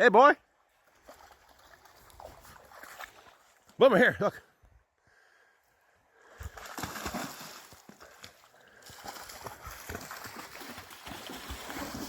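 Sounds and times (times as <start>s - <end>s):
water splashing while wading: 0.7s - 3.8s, 6.3s - 12.0s.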